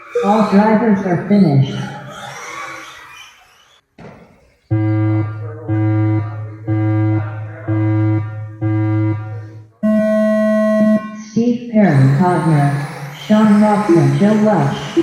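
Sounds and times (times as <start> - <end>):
higher long electronic tone: 4.7 - 11.2
low electronic beeps: 4.7 - 15.0.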